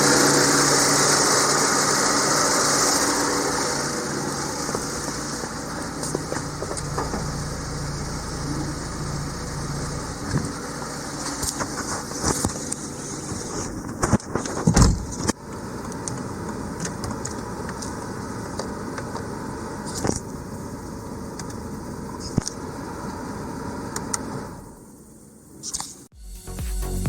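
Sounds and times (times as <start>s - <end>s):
car engine idling: 0.0s - 14.1s.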